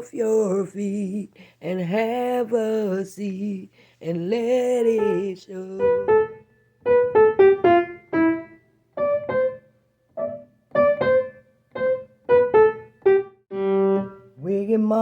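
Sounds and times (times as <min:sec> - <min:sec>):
keyboard playing piano-like melody: 0:05.9 - 0:09.6, 0:10.2 - 0:14.3.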